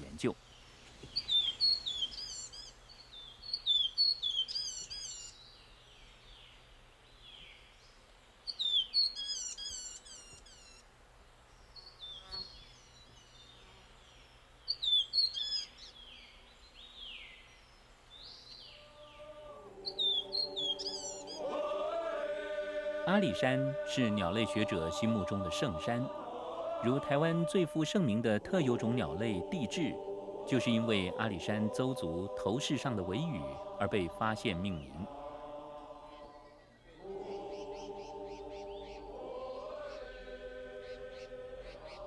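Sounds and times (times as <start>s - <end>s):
songbird whistling: 1.1s - 5.4s, 8.5s - 10.8s, 14.7s - 15.7s, 19.8s - 21.5s
low held musical chord: 19.0s - 41.8s.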